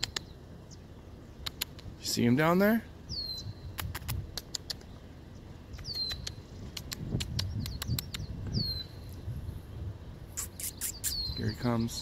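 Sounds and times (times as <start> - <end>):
sharp high ticks: 0.0 - 0.3, 1.4 - 1.9, 3.8 - 4.9, 5.8 - 8.3.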